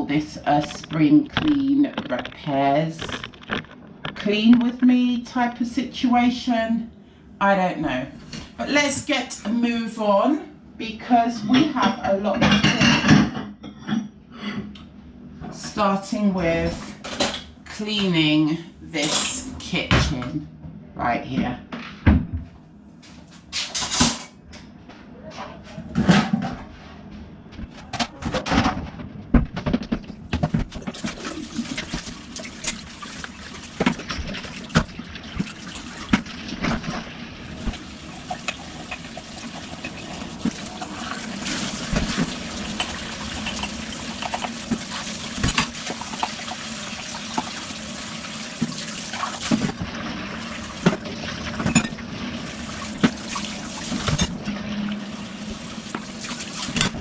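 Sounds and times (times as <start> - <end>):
dishes knocking and clinking: 11.5 - 14.1, 37.6 - 40.6, 41.6 - 46.5, 50.8 - 52.0, 53.9 - 54.4, 56.7 - 57.0
tap water running into sink: 30.9 - 57.0.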